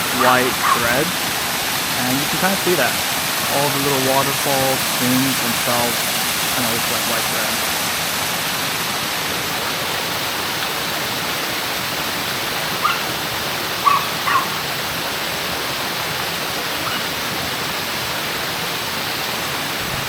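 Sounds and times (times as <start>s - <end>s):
short high yelps: 0.0s - 1.0s, 13.8s - 14.6s
water rushing over rock face: 0.0s - 20.0s.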